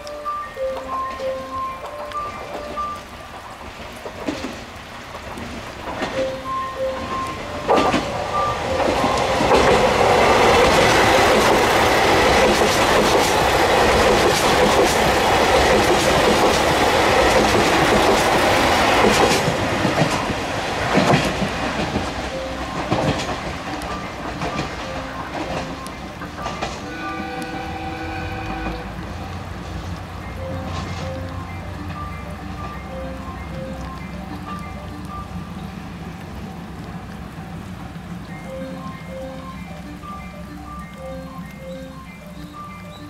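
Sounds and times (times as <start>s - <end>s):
rail-joint clickety-clack: 0.1s - 37.8s
train wheels rushing past: 3.9s - 33.1s.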